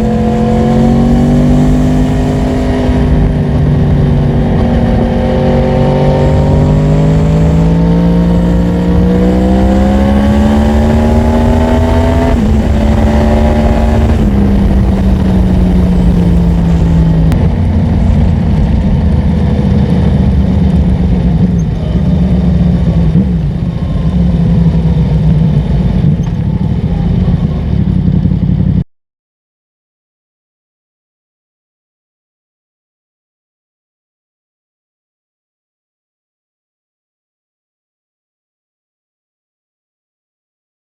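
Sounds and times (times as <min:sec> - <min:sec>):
motorcycle engine revving: 0:00.0 - 0:28.8.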